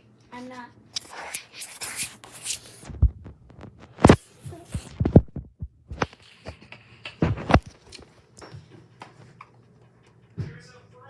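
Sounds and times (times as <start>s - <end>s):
objects knocking on hard surface: 2.9s - 6.2s, 7.1s - 7.8s.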